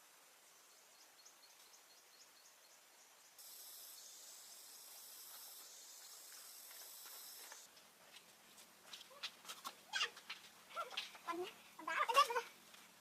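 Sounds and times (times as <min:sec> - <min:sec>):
high-pitched insect buzz: 0:03.4 - 0:07.7.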